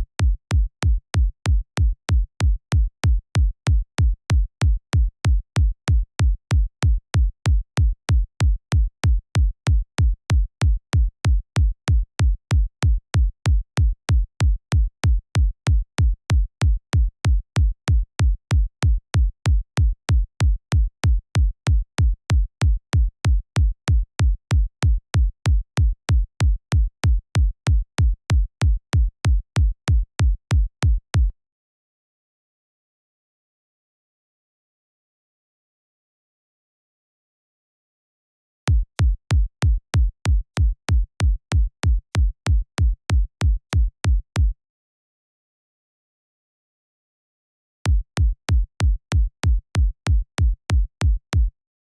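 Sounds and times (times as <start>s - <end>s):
electronic kick drum loop: 38.7s - 44.5s, 47.9s - 51.5s.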